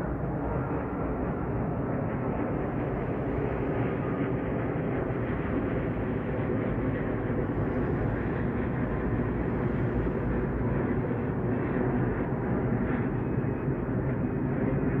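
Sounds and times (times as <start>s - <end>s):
distant train rumble: 0.0s - 15.0s.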